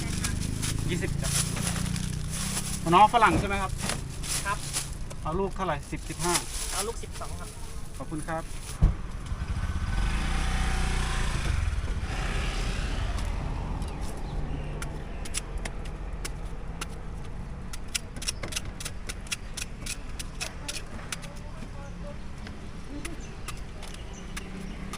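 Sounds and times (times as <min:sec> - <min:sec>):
vehicle engine rumble passing: 0:00.0 - 0:17.7
sharp clicks and taps: 0:14.8 - 0:21.5, 0:22.4 - 0:24.9.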